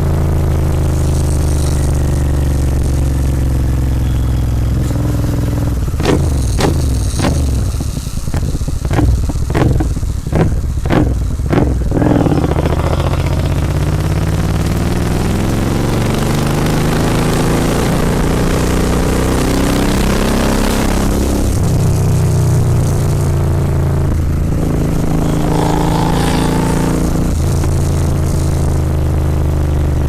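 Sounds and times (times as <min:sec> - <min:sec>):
motorcycle engine accelerating: 0:08.4 - 0:29.6.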